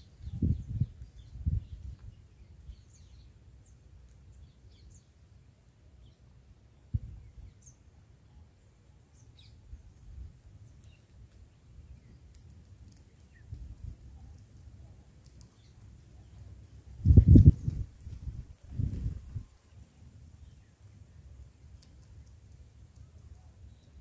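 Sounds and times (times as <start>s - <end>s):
wind rumble on microphone: 0.0s - 2.8s, 6.9s - 7.6s, 13.4s - 14.2s, 16.9s - 19.6s
birds chirping faintly: 0.0s - 24.0s
thump: 7.0s - 7.2s.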